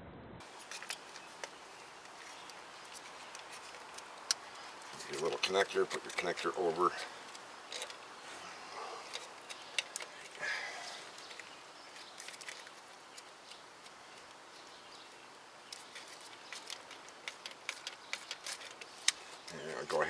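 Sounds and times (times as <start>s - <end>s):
hand tool clicking on metal parts: 0.6s - 8.0s, 9.0s - 10.5s, 15.7s - 20.0s.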